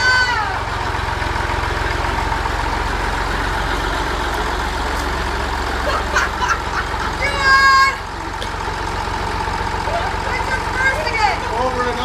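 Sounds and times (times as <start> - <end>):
heavy vehicle engine rumbling: 0.0 - 12.0.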